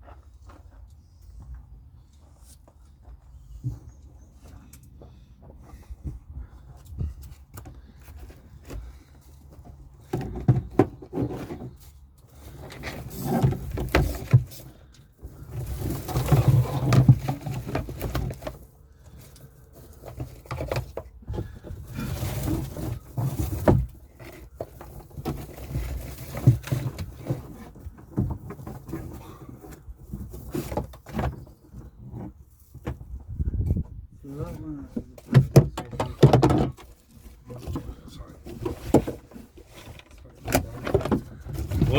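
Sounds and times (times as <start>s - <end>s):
rustling and clicking of tools: 34.9s - 41.9s.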